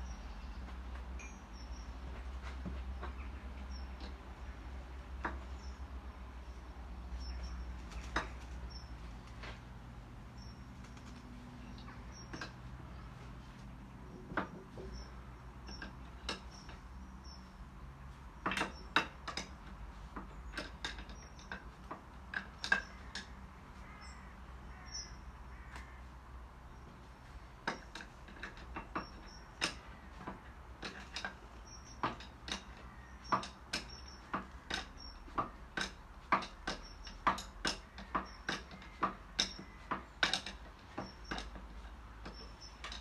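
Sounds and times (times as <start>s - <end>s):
light clicks and knocks: 0.5s - 43.0s.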